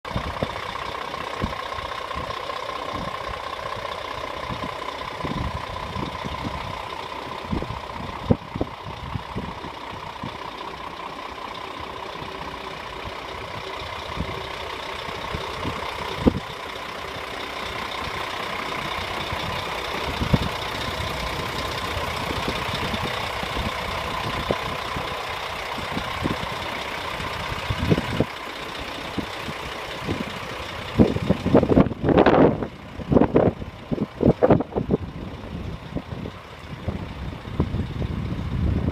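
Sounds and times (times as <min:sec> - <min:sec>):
truck engine idling: 0:00.0 - 0:38.9
steady whine: 0:00.1 - 0:38.9.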